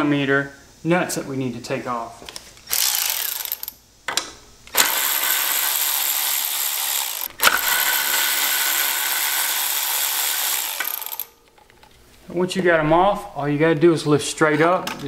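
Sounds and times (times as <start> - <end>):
electric ratchet running: 2.6 - 3.8, 4.7 - 11.4
ratchet click: 2.7 - 3.8, 4.7 - 11.4.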